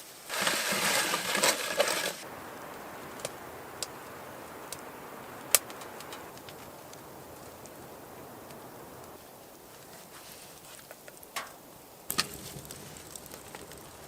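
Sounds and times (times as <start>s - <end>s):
food sizzling: 0.0s - 9.9s, 10.8s - 14.0s
small pops of cooking food: 2.6s - 9.2s, 10.8s - 14.0s.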